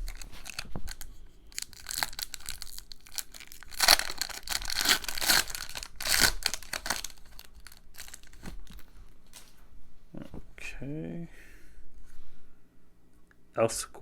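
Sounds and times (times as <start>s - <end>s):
wrapper tearing and crinkling: 0.0s - 9.6s.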